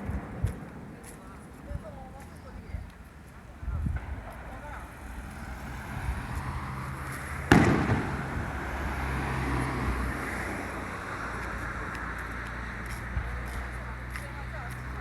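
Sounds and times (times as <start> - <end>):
firework shell bursting: 7.5 - 8.6.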